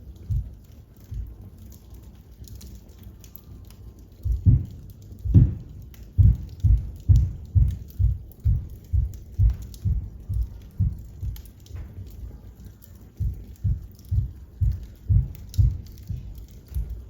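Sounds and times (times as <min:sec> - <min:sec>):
wood fire crackling: 0:00.0 - 0:17.0
dull low thumps: 0:04.2 - 0:11.9, 0:13.2 - 0:17.0.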